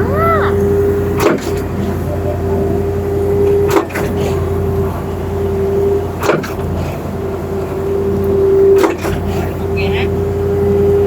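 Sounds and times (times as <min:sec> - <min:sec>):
pump clunking: 0:00.0 - 0:11.0
pump truck engine and hydraulic hum: 0:00.0 - 0:11.0.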